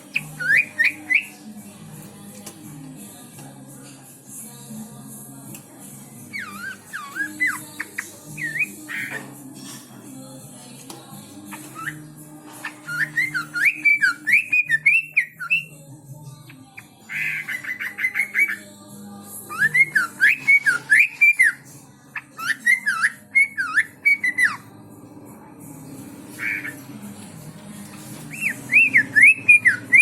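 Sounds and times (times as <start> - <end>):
songbird whistled song: 0.0 - 1.6, 6.2 - 9.8, 10.8 - 24.7, 26.3 - 27.0, 28.1 - 30.0.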